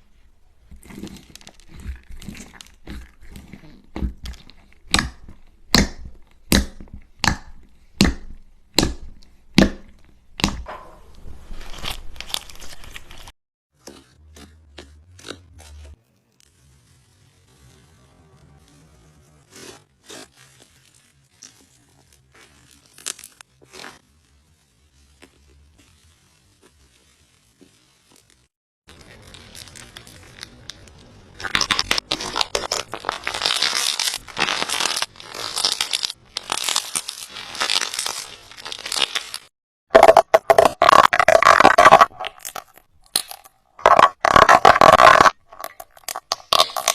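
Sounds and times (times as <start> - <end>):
slime crackling and popping: 0.7 - 10.7, 20.0 - 24.0, 24.7 - 46.9.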